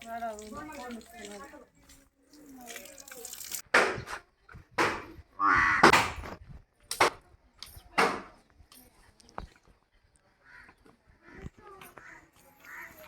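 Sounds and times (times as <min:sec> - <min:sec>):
harsh animal calls: 0:05.4 - 0:05.9.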